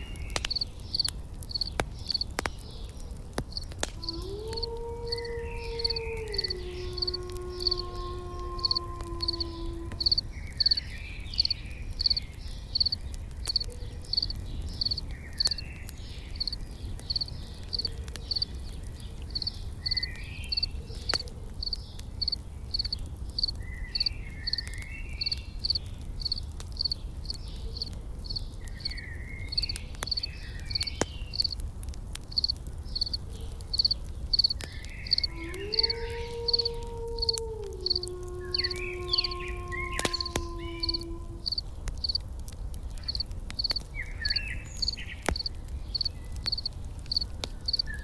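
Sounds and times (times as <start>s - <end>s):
campfire crackling: 0.0s - 48.0s
insect chirping: 0.5s - 2.2s, 4.6s - 7.8s, 8.6s - 10.8s, 11.4s - 12.2s, 12.8s - 15.6s, 16.4s - 18.5s, 19.4s - 24.6s, 25.2s - 30.3s, 32.3s - 42.2s, 43.0s - 48.0s.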